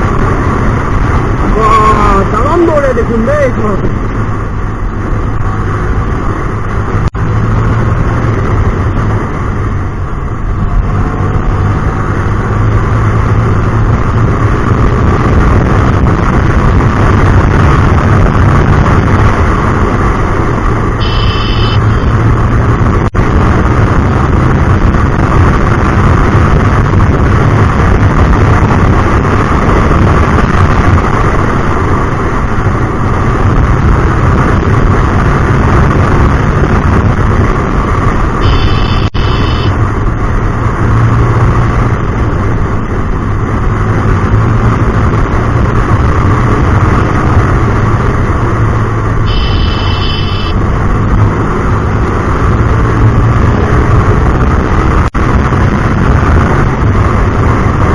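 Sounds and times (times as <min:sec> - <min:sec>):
motorcycle engine running: 0:00.0 - 0:57.9
road noise: 0:00.0 - 0:57.9
short high-pitched tone: 0:21.0 - 0:22.1, 0:38.4 - 0:39.7, 0:49.3 - 0:50.6.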